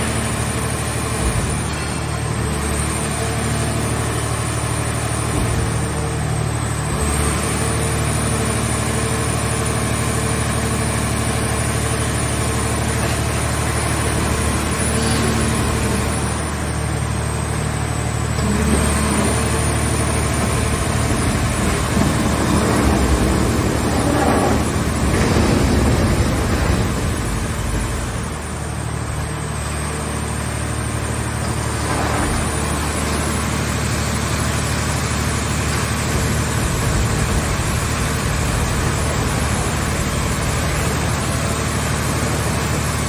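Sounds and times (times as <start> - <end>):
engine running steadily: 0.0 - 43.0.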